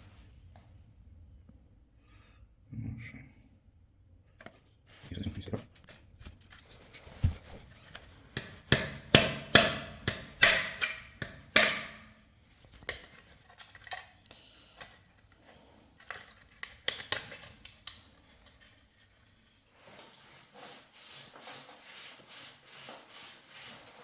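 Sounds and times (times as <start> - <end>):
hard strikes on a wall: 8.4 - 12.0.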